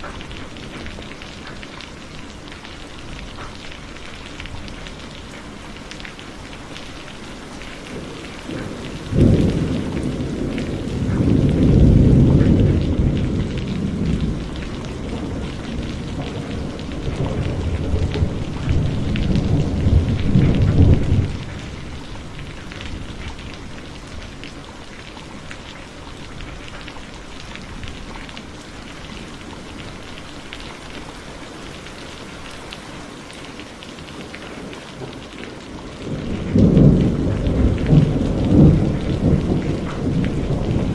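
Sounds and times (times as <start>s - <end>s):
heavy rain: 0.0s - 40.9s
rolling thunder: 7.8s - 24.4s, 35.9s - 40.9s.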